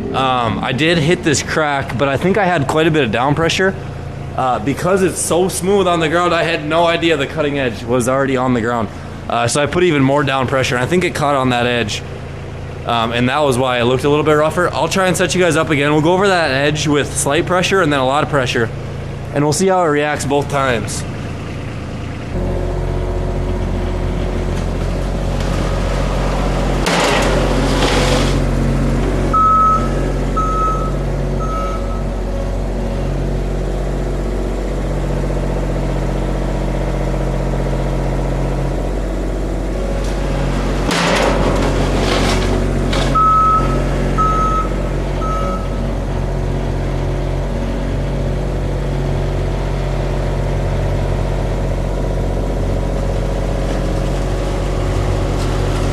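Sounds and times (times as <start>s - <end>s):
plow blade rushing and scraping: 0.0s - 55.9s
plow vehicle engine running: 0.0s - 55.9s
reversing alarm beeps: 29.3s - 32.1s, 43.2s - 45.8s.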